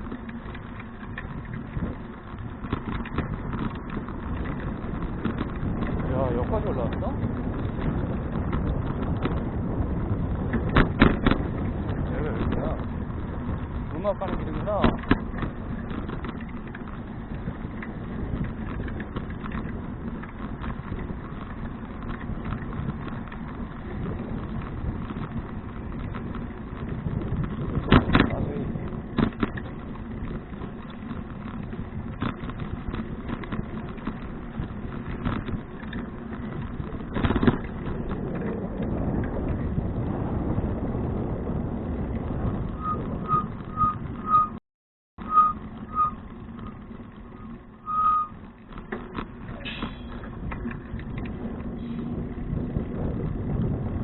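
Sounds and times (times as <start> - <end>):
bicycle riding noise: 0.0 - 44.6, 45.2 - 54.0
wind rumble on microphone: 0.0 - 44.6, 45.2 - 54.0
high electronic beeps: 42.8 - 44.6, 45.3 - 46.2.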